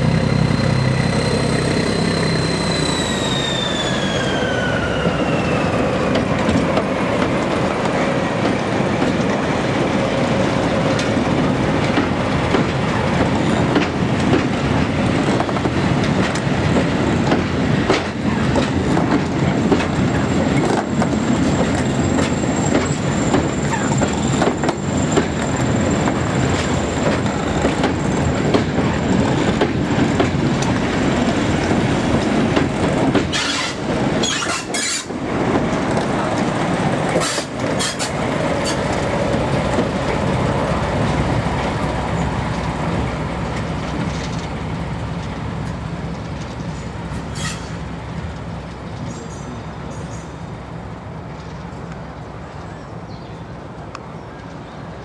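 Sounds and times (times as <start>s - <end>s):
train rumbling: 0.0s - 55.0s
wheels clicking over rail joints: 6.0s - 55.0s.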